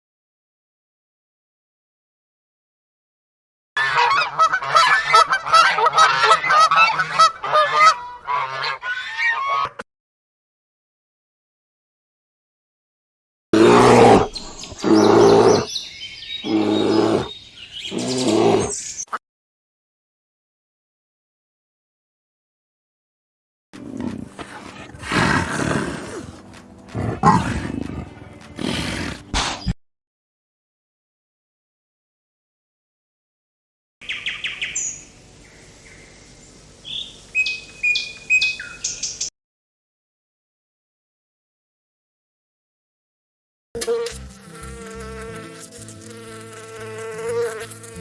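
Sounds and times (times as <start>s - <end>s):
large animal roaring: 13.6s - 15.7s, 16.4s - 17.3s, 17.9s - 18.7s, 23.8s - 29.4s
birds chirping: 13.8s - 19.2s, 34.0s - 39.3s.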